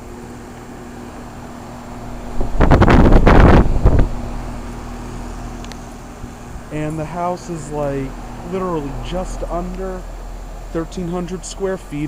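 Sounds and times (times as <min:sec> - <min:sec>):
air conditioner humming: 0:00.0 - 0:12.0
wind buffeting microphone: 0:02.1 - 0:04.7.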